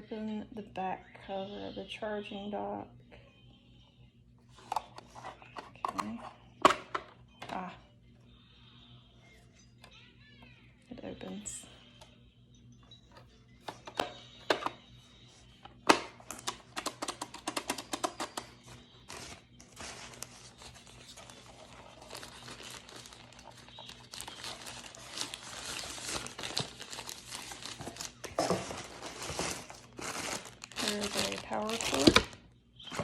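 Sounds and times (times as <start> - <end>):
packaging crinkling and rustling: 15.9 - 33.0.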